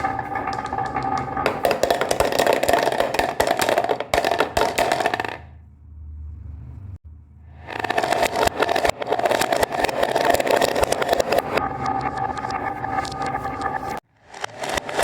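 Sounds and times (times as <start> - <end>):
marbles clattering on track: 0.0 - 5.6, 7.6 - 15.0
faint low hum: 5.5 - 7.7.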